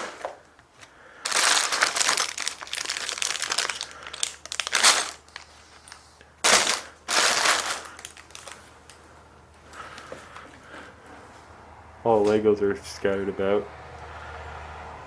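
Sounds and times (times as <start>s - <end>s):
paper and plastic crinkling: 0.0s - 9.1s.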